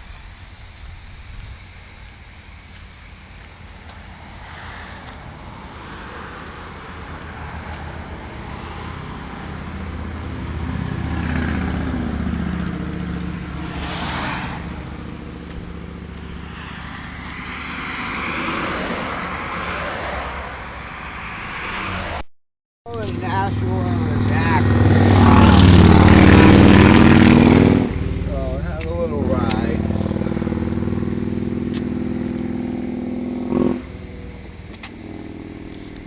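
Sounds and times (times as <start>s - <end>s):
car engine running: 5.5s - 17.8s, 22.9s - 36.0s.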